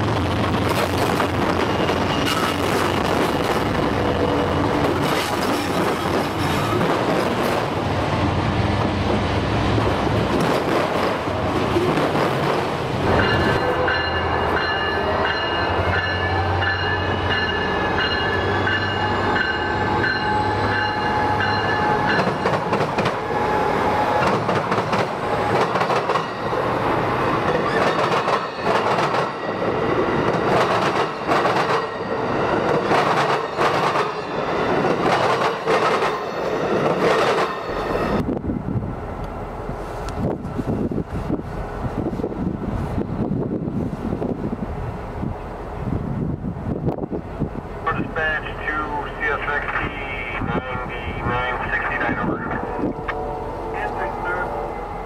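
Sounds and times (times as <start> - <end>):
freight cars rolling on rails: 0.0 - 38.4
locomotive accelerating with whine: 0.0 - 55.0.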